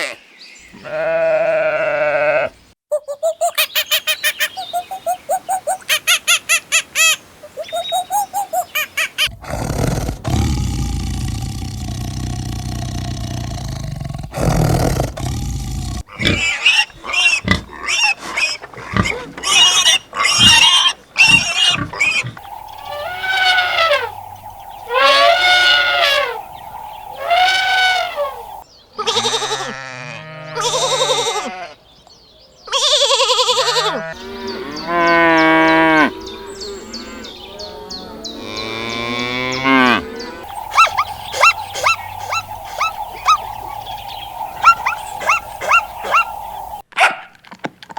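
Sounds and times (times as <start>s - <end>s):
wavering animal calls: 3.1s - 29.6s, 39.6s - 46.8s
short rapid animal calls: 16.0s - 28.6s, 40.5s - 46.8s
drawn-out animal calls: 16.0s - 29.5s, 39.6s - 46.8s
low rumbling: 22.3s - 28.6s, 40.5s - 46.8s.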